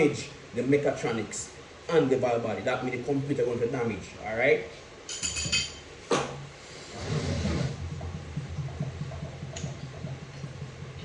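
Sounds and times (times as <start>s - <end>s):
steady low hum: 0.0s - 11.0s
short metallic ring: 5.1s - 5.8s.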